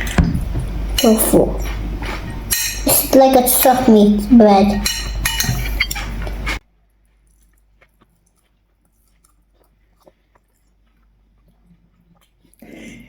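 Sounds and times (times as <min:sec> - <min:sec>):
person chewing: 0:05.7 - 0:12.6.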